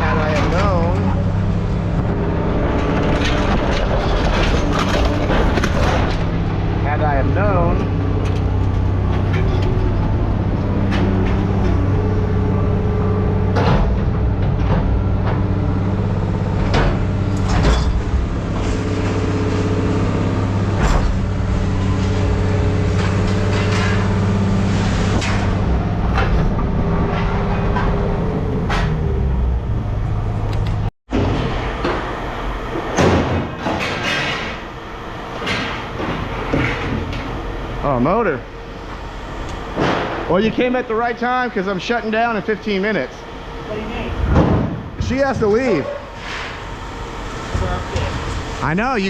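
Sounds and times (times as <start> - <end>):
metal clanks and knocks: 0.0 - 6.8, 13.4 - 19.3, 20.4 - 29.3, 32.8 - 37.5
vehicle engine running: 0.0 - 49.0.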